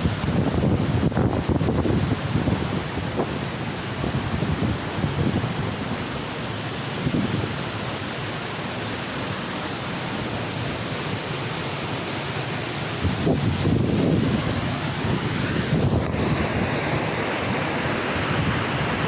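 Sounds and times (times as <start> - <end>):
wind buffeting microphone: 0.0 - 6.2, 6.8 - 7.6, 12.8 - 19.0
waterfall roaring: 0.0 - 19.0.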